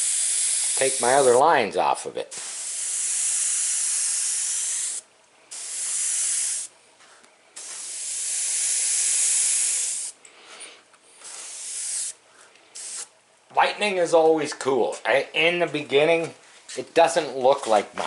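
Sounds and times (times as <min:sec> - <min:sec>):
airbrush hissing: 0:00.0 - 0:01.4, 0:02.3 - 0:06.7, 0:07.6 - 0:10.2, 0:11.2 - 0:13.1.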